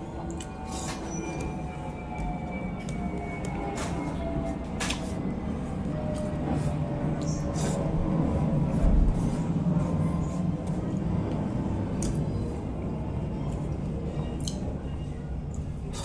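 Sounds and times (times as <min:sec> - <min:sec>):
chewing: 0:00.2 - 0:01.2, 0:12.0 - 0:12.4.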